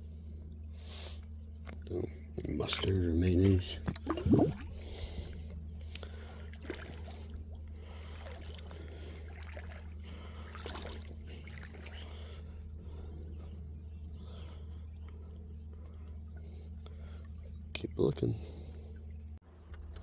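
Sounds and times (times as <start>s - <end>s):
steady low hum: 0.0s - 20.0s
creek water trickling: 1.8s - 19.4s
splashes from wading: 3.8s - 4.9s, 6.0s - 12.6s.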